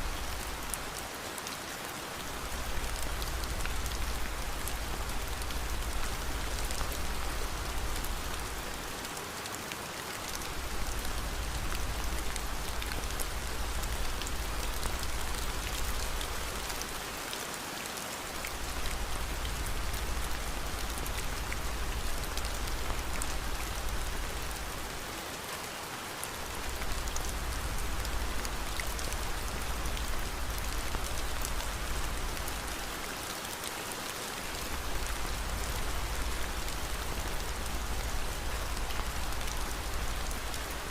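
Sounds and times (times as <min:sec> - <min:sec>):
steady rain: 0:00.0 - 0:40.9
faint fire crackling: 0:02.0 - 0:09.2, 0:10.1 - 0:17.0, 0:18.2 - 0:25.2, 0:34.4 - 0:40.9.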